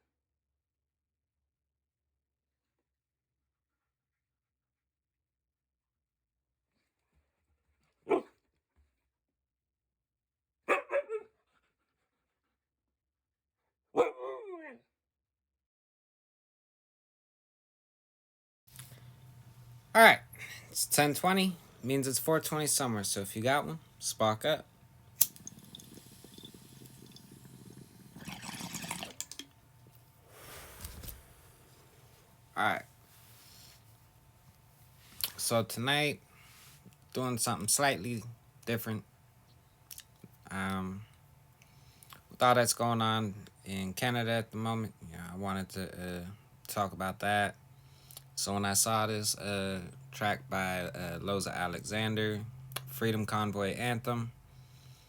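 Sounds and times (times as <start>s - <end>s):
dog barking: 8.1s - 8.4s, 10.7s - 11.3s, 14.0s - 14.6s
water bubbling in bong: 25.1s - 30.1s.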